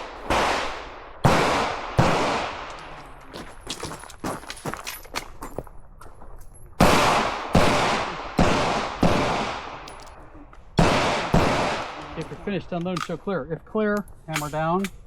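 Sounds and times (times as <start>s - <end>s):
gunshots with echo: 0.0s - 3.0s, 6.8s - 9.9s, 10.8s - 12.5s.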